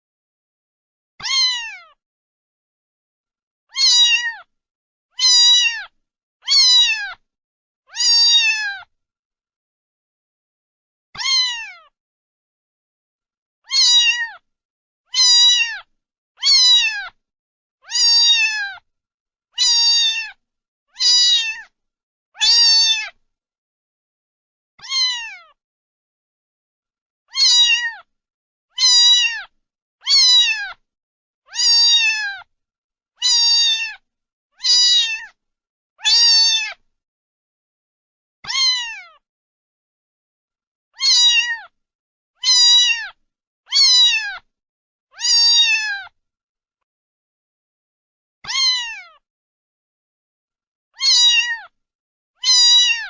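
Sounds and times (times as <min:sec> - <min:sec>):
cat meowing: 0:01.2 - 0:02.0, 0:03.7 - 0:04.5, 0:05.2 - 0:07.2, 0:07.9 - 0:08.9, 0:11.2 - 0:12.0, 0:13.6 - 0:14.4, 0:15.1 - 0:17.2, 0:17.8 - 0:18.8, 0:19.6 - 0:21.7, 0:22.4 - 0:23.2, 0:24.8 - 0:25.6, 0:27.3 - 0:28.1, 0:28.7 - 0:30.8, 0:31.5 - 0:32.5, 0:33.2 - 0:34.0, 0:34.6 - 0:35.4, 0:36.0 - 0:36.8, 0:38.4 - 0:39.2, 0:41.0 - 0:41.8, 0:42.4 - 0:44.5, 0:45.1 - 0:46.2, 0:48.4 - 0:49.2, 0:51.0 - 0:51.8, 0:52.4 - 0:53.0.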